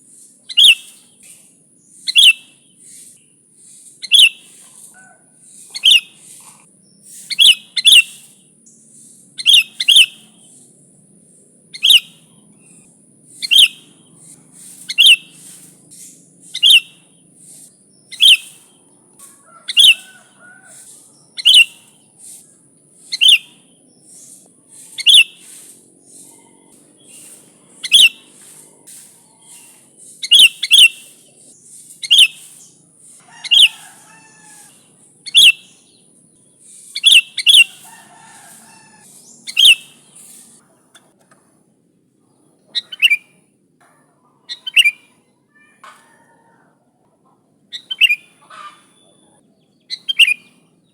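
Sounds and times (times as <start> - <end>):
bird chattering notes: 0.5 - 1.0, 1.9 - 10.6, 11.7 - 22.4, 23.0 - 33.9, 36.6 - 40.6, 47.7 - 50.6
bird sharp calls: 0.5 - 10.6, 11.7 - 40.6, 42.7 - 43.4, 44.3 - 46.2, 47.7 - 50.9.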